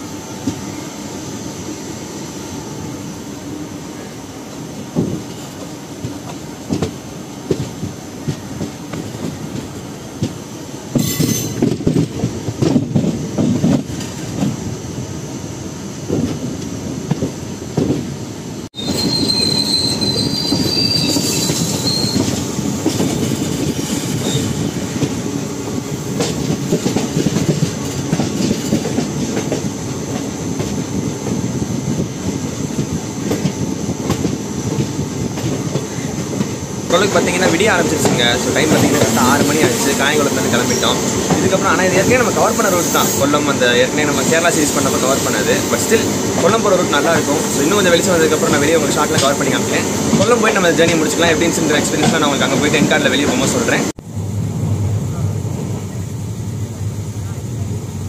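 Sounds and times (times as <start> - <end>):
passenger train rolling and rattling: 0.0 - 58.0
high wheel squeal: 18.8 - 22.5, 23.2 - 24.7.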